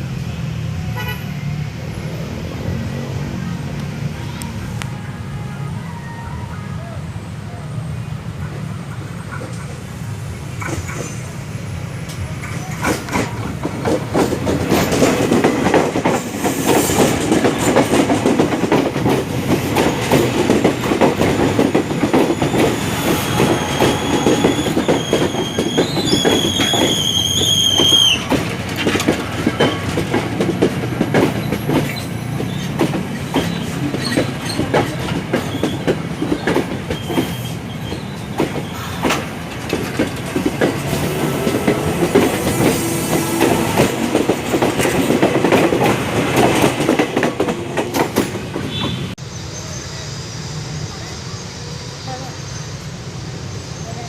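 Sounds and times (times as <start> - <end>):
train wheels clattering: 10.5 - 49.2
high squeal: 21.9 - 28.3.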